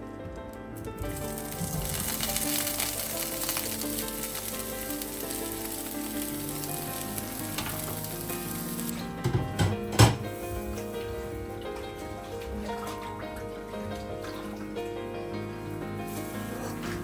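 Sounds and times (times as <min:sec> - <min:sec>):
food sizzling in a pan: 0:01.0 - 0:09.4.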